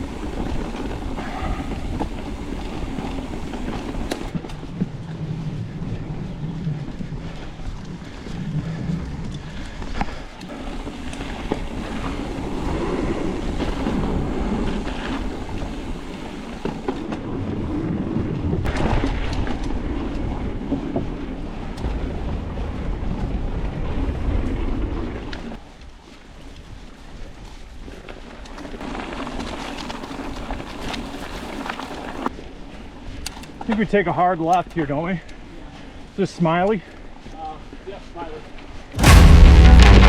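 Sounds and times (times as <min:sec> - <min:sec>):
wind buffeting microphone: 0:00.0 - 0:25.6
bike tyres rolling on dirt: 0:00.0 - 0:40.0.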